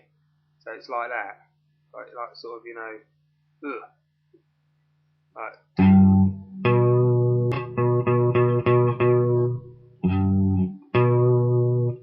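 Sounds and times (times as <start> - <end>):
guitar strumming: 5.8 - 12.0.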